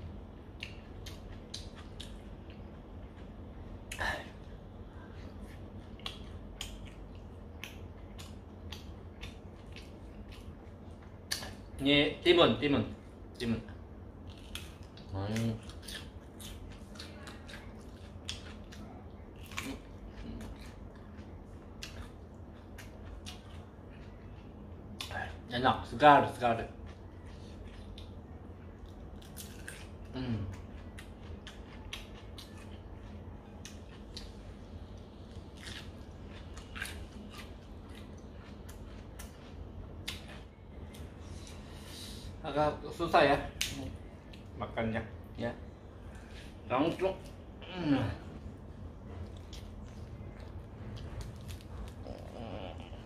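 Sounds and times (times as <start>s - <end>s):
person chewing food: 0.0s - 11.8s, 13.0s - 25.5s, 26.4s - 42.0s, 45.9s - 53.0s
low hum: 0.0s - 53.0s
crisp crunching of cucumber: 35.2s - 40.3s.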